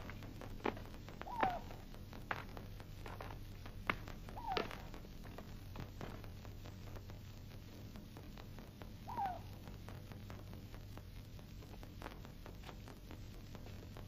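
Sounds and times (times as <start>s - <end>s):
faint hum and hiss: 0.0s - 14.0s
bird call falling note: 1.2s - 1.8s.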